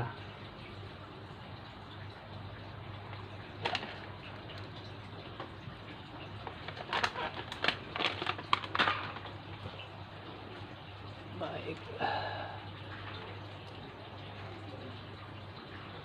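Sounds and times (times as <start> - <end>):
fertilizer granules rattling: 3.6 - 4.4, 6.4 - 9.4.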